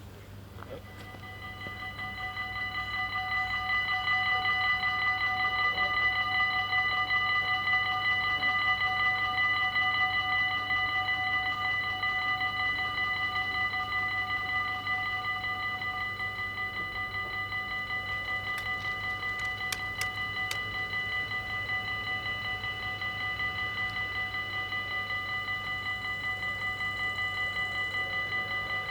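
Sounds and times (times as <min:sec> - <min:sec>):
railroad crossing bell ringing: 0:00.8 - 0:28.9
sharp clicks: 0:18.5 - 0:20.7.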